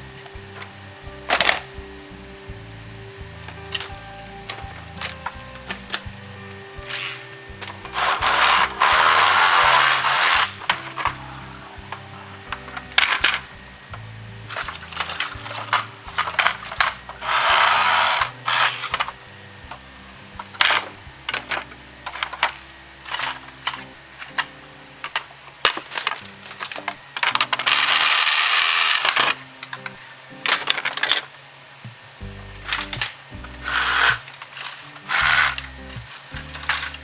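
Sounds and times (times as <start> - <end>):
bamboo canes clacking together: 0.0 - 37.0
light background music: 0.0 - 37.0
bamboo rustling scrapes: 3.3 - 13.5, 14.5 - 19.2, 33.6 - 37.0.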